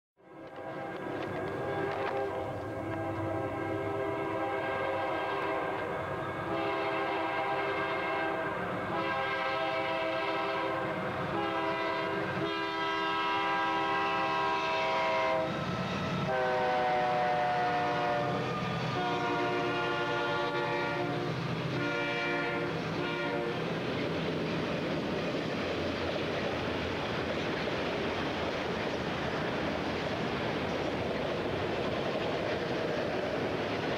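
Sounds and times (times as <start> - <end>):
locomotive air horn blasts: 0.2 - 15.6, 16.3 - 23.7
train rumble: 0.2 - 33.9.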